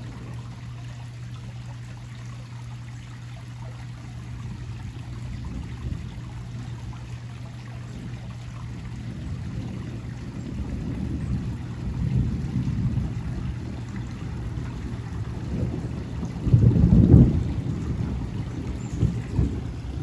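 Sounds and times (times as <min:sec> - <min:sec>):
rain pouring: 0:00.0 - 0:20.0.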